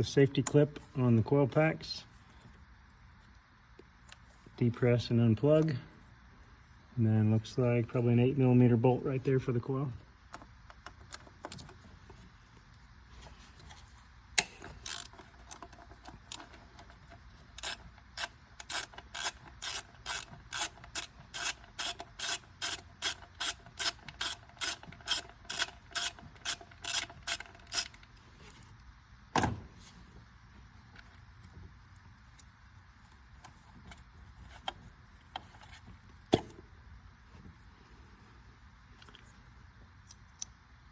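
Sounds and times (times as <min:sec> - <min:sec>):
ratchet wrench clicking: 0:14.4 - 0:16.5, 0:17.6 - 0:28.0.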